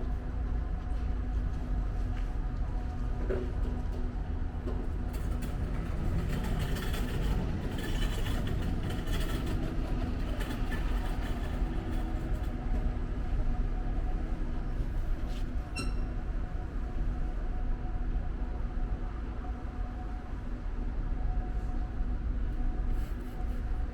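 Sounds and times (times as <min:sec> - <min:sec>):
street traffic rumble: 0:04.0 - 0:15.4.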